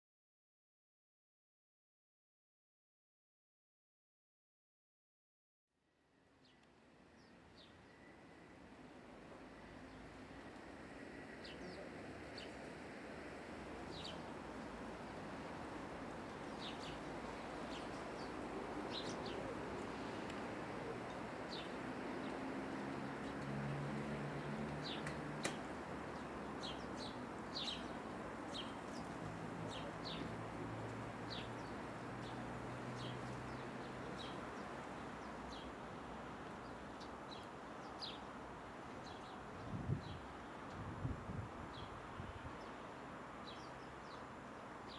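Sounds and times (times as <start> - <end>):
outdoor background noise: 5.8 - 44.9
small birds chirping: 13.8 - 14.4, 16.4 - 35.8, 36.5 - 40.8.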